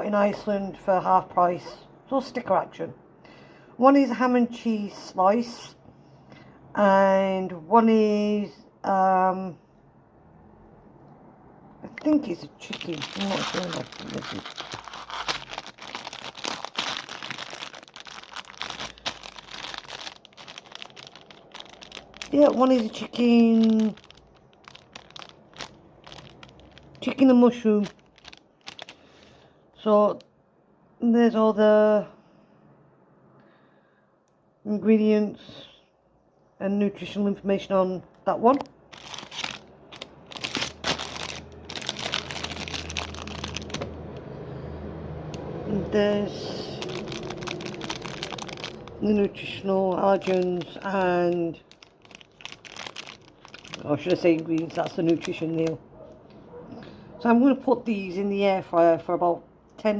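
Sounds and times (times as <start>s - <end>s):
plastic packaging crinkling: 11.9s - 29.5s, 38.5s - 44.2s, 46.2s - 55.8s.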